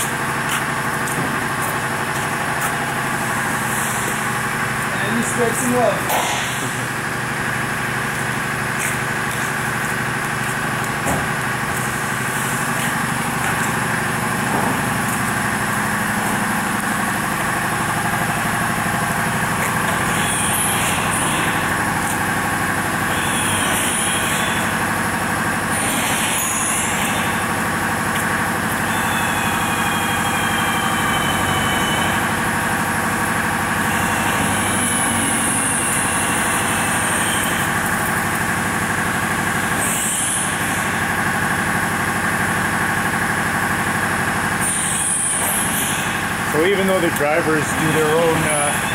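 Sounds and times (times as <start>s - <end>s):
diesel truck engine idling: 0.0s - 48.9s
high squeaks: 8.2s - 32.8s, 33.4s - 39.2s.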